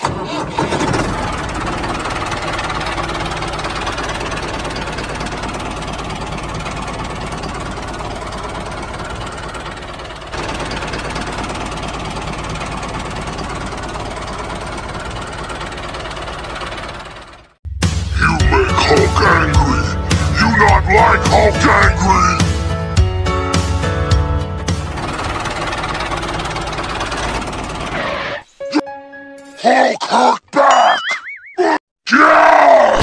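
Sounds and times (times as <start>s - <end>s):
diesel tractor engine chugging: 0.0s - 28.5s.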